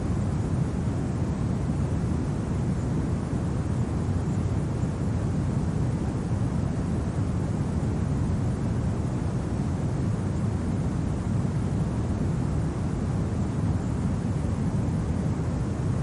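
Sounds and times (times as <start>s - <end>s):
low rumble of wind: 0.0s - 16.0s.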